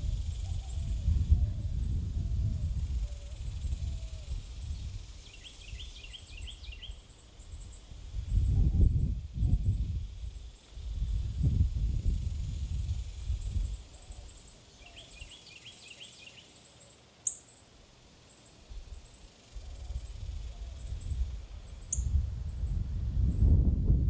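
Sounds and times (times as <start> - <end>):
lower bird twittering: 0.1 - 2.0, 2.6 - 23.6
high thin bird chirps: 3.3 - 11.5, 12.1 - 17.8, 18.4 - 22.8.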